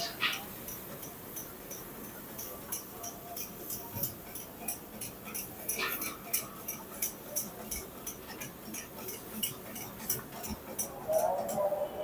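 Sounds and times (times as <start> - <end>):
hot oil crackling and spitting: 0.0 - 11.5.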